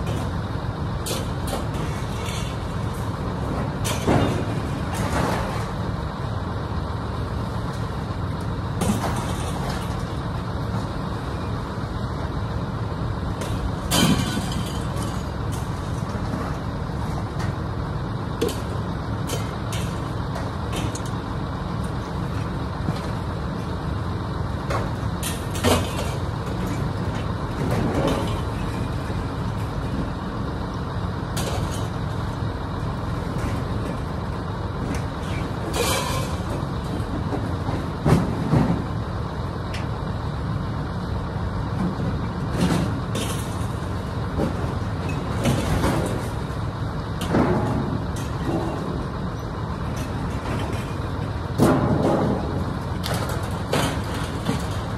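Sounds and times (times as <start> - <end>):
vehicle engine and road rumble: 0.0 - 54.9
sharp knocks and rattles: 47.2 - 49.2, 49.8 - 54.9.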